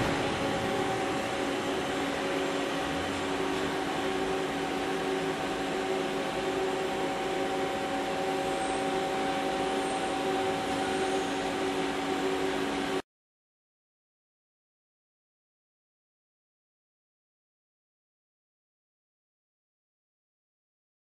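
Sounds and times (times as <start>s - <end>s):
lathe mechanical hum: 0.0s - 13.0s.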